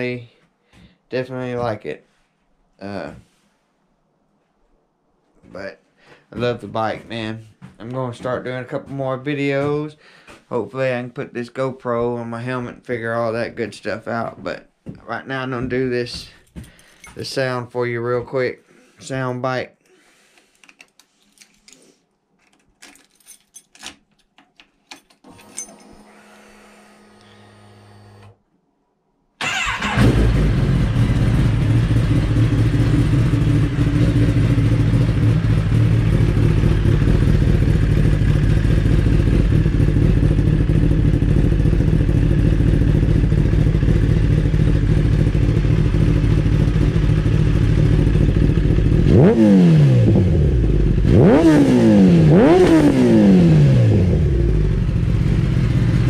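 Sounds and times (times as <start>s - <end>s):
motorcycle engine idling: 29.6s - 49.3s, 54.5s - 56.0s.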